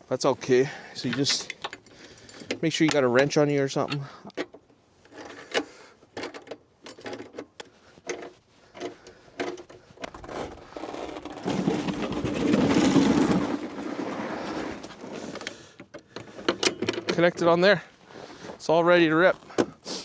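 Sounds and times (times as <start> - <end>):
metal clicks and knocks: 1.1 - 10.3, 15.8 - 17.5.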